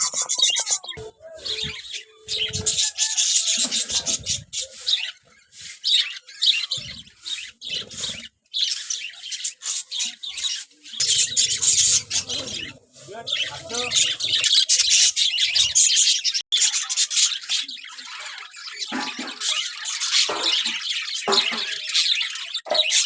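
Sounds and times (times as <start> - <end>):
parrots chirping and chattering: 0.0 - 23.0.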